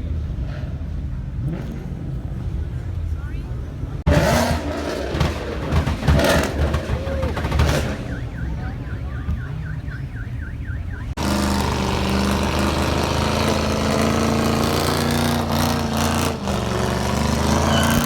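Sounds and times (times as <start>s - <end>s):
car engine running at raised revs: 3.8s - 18.0s
car alarm warbling chirp: 5.8s - 11.2s, 17.6s - 18.0s.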